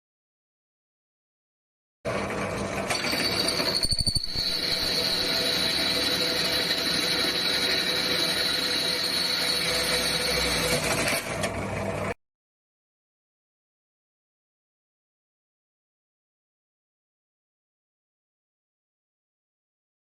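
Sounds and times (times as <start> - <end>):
power tool cutting steel: 2.9 - 11.5.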